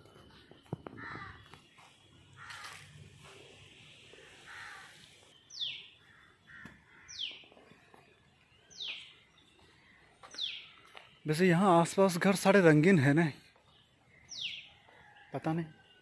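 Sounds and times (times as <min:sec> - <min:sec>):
crows cawing faintly: 0:00.8 - 0:03.5, 0:04.1 - 0:08.0.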